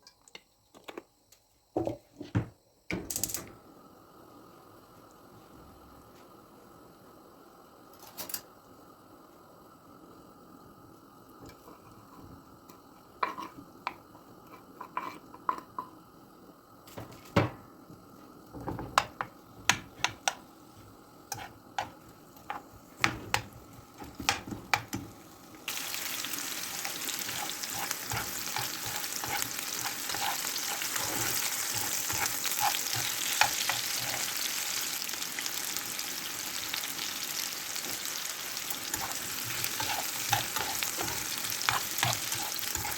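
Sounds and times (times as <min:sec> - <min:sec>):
food sizzling in hot oil: 0:18.2 - 0:42.9.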